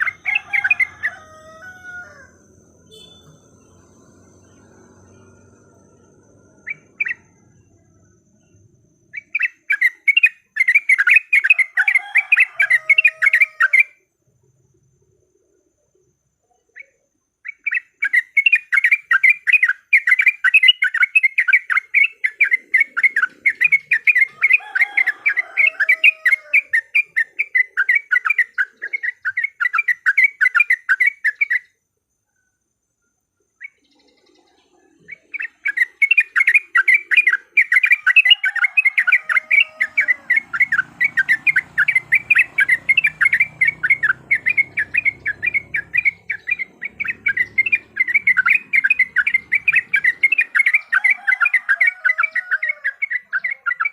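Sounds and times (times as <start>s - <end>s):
bulbuls chattering: 34.2s - 53.9s.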